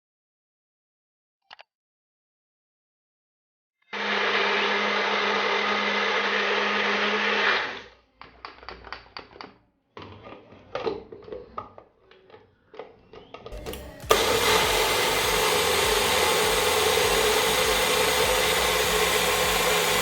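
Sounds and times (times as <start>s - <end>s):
blender running: 3.9s - 7.9s, 13.6s - 20.0s.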